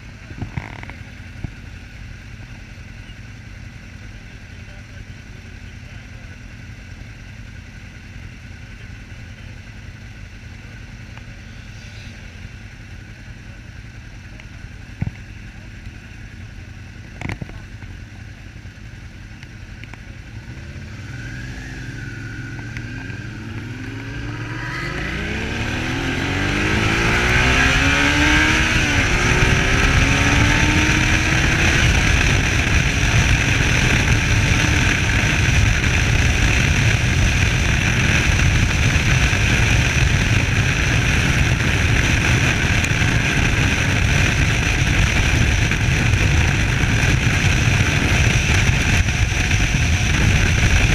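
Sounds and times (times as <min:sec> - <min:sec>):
motorcycle engine pulling away: 0:20.0 - 0:50.9
wind rush: 0:20.9 - 0:50.9.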